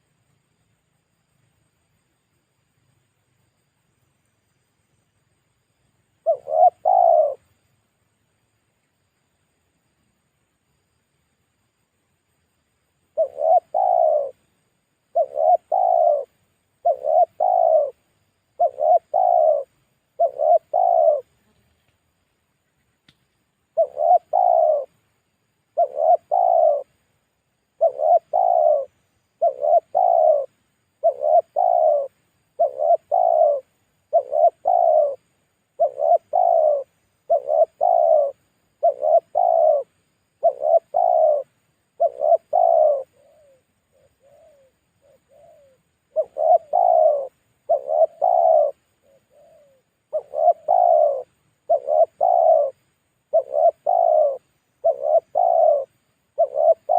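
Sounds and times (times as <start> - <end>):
dove cooing: 6.2 - 7.5, 13.1 - 14.4, 15.1 - 21.4, 23.7 - 25.0, 25.7 - 27.0, 27.7 - 56.9.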